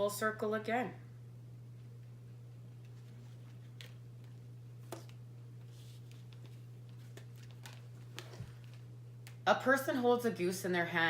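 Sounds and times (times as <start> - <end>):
steady low hum: 0.0 - 11.0
cards tapping and rustling: 2.8 - 9.4.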